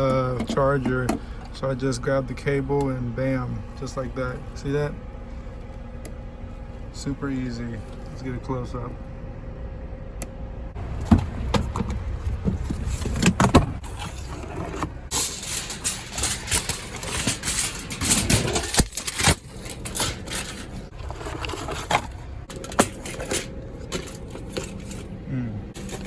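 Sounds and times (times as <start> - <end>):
low steady rumble: 0.0 - 26.0
phone handling clicks and scraping: 10.8 - 25.2.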